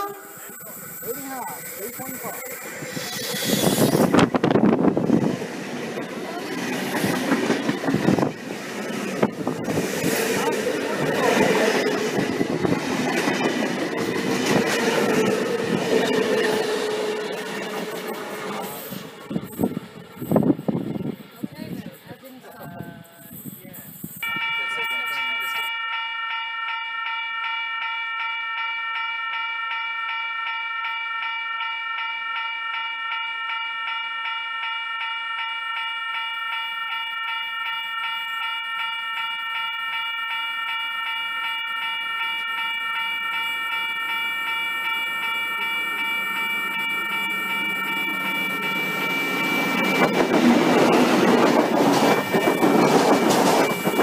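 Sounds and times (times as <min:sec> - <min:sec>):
train rumbling past: 0:00.0 - 0:25.7, 0:38.0 - 0:54.0.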